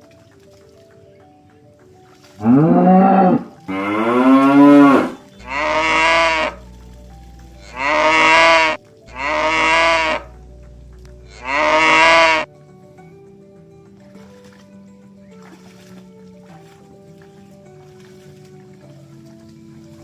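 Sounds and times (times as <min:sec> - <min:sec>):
oxen mooing: 0:02.4 - 0:06.7, 0:07.6 - 0:10.4, 0:11.3 - 0:12.5.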